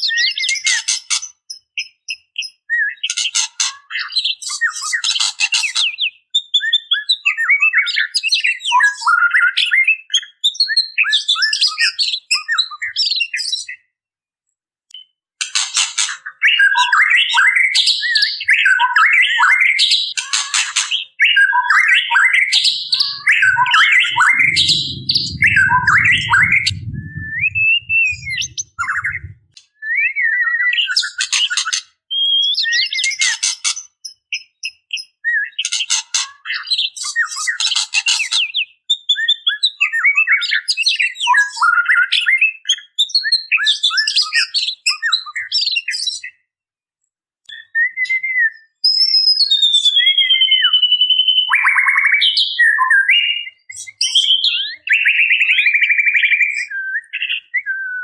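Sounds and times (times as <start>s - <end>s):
bird calling chirps and whistles: 16.2s - 33.7s, 47.5s - 58.0s
low rumble: 22.9s - 29.6s.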